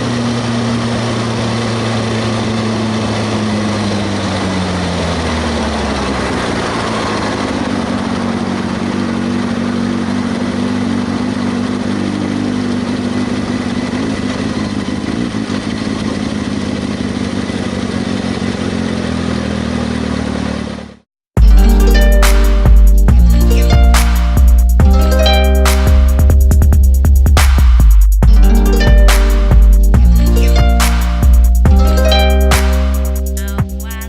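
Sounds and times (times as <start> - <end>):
motorcycle engine running: 0.0 - 34.0
music: 21.4 - 34.0.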